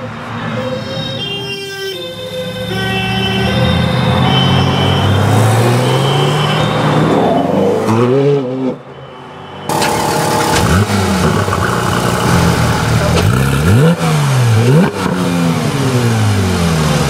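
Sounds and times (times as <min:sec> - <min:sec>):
car engine idling: 0:09.7 - 0:17.0
car engine pulling away and revving: 0:09.7 - 0:17.0.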